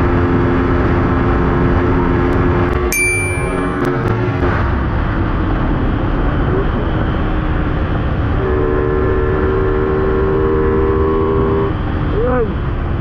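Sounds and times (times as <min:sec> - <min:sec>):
motorcycle at top speed: 0:05.1 - 0:13.0.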